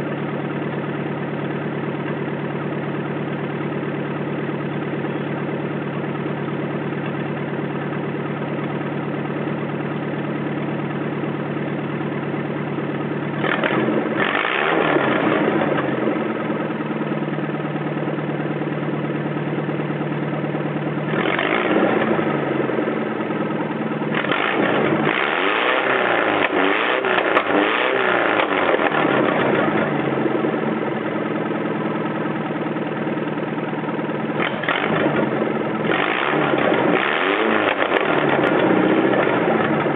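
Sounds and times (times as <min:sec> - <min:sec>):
engine idling and revving: 0:00.0 - 0:39.9.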